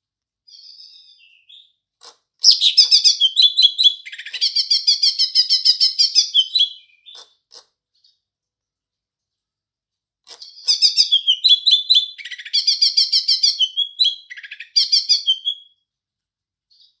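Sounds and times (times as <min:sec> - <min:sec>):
bird chattering song: 0:00.5 - 0:08.2, 0:10.3 - 0:15.7.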